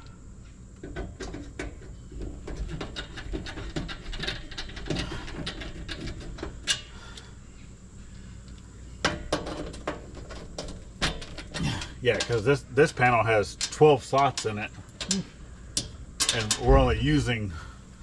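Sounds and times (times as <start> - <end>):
clicks and scrapes at breaker panel: 0.8 - 7.3, 9.0 - 12.5, 13.5 - 16.9.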